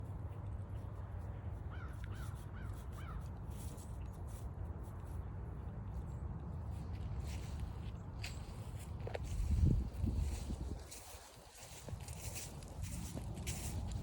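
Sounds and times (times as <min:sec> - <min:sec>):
steady low rumble: 0:00.0 - 0:14.0
crow cawing: 0:01.7 - 0:03.2
footsteps on trail: 0:06.8 - 0:14.0.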